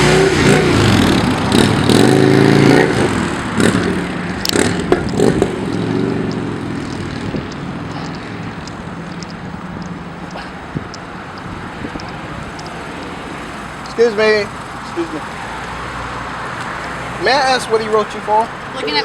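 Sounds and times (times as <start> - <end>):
vehicle engine revving: 0.0 - 19.0
sharp clicks: 2.8 - 17.2.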